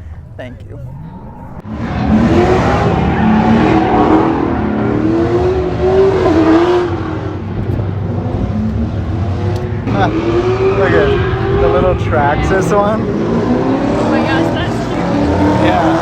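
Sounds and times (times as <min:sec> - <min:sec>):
car engine revving hard: 0:01.4 - 0:16.0.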